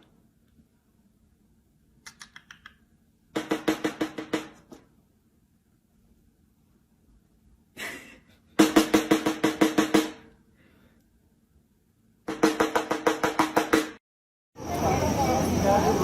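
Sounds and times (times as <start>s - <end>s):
rapid drum-like strikes: 3.3s - 4.7s, 8.6s - 10.3s, 12.3s - 14.0s.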